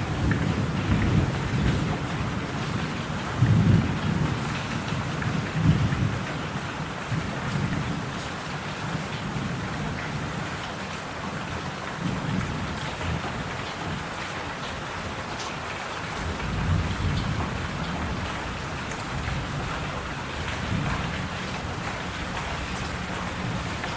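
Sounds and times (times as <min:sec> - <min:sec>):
steady rain hiss: 0:00.0 - 0:23.9
faint raindrop ticks: 0:11.9 - 0:23.9.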